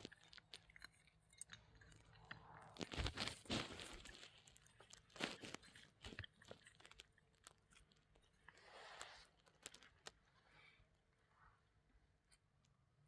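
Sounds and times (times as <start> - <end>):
crunching: 0.0 - 10.2
soft rustling: 2.8 - 7.0.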